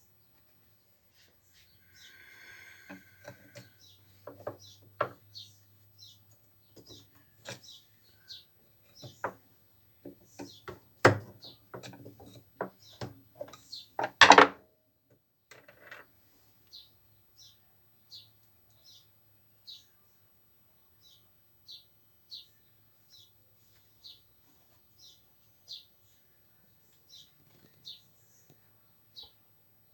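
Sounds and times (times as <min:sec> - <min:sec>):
small birds chirping: 0:00.0 - 0:14.1, 0:16.6 - 0:29.9
tools and parts knocking: 0:02.9 - 0:05.3, 0:08.8 - 0:09.4, 0:10.0 - 0:14.6.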